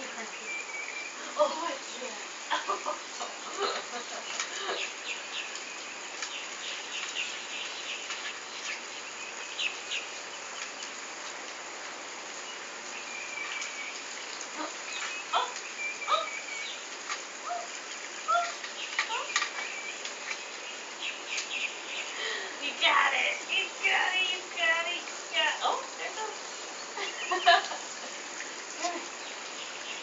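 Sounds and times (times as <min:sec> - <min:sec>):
steady outdoor hiss: 0:00.0 - 0:30.0
bird chirps and whistled calls: 0:00.3 - 0:01.2, 0:12.5 - 0:14.0, 0:14.8 - 0:22.2.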